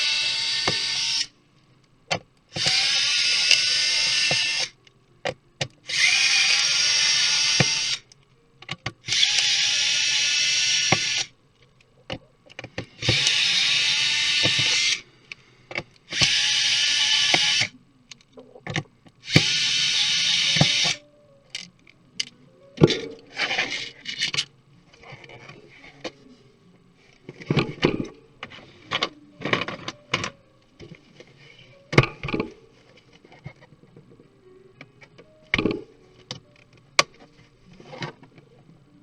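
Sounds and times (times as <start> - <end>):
laptop parts clicking and scraping: 10.6 - 26.2.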